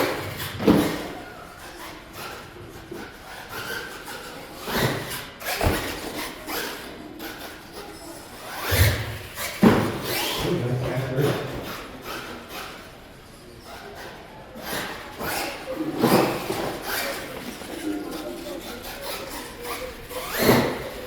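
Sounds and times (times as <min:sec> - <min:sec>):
toy truck thuds and clatters: 0:00.0 - 0:07.8, 0:08.5 - 0:10.4, 0:14.6 - 0:17.9, 0:18.6 - 0:21.0.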